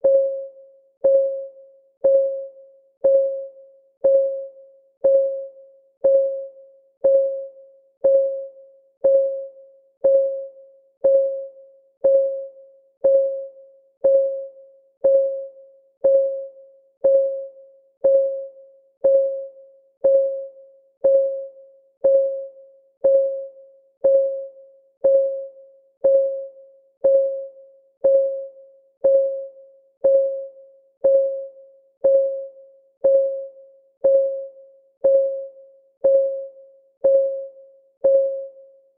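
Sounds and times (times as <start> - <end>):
countdown timer ticking: 2.0 - 2.4, 3.0 - 38.6.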